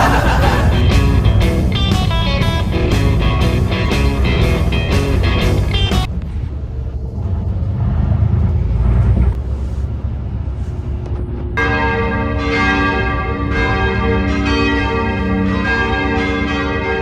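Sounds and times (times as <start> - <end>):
bells ringing: 0.0 - 6.1, 11.6 - 17.0
low rumble: 0.0 - 17.0.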